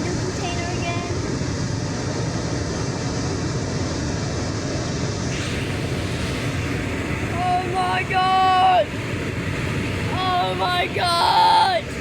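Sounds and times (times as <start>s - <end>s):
freight train passing: 0.0s - 12.0s.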